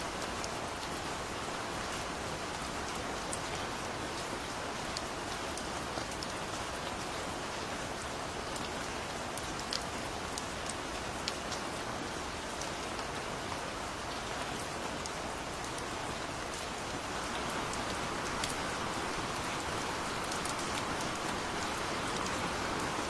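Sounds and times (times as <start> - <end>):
rain falling: 0.0 - 23.0.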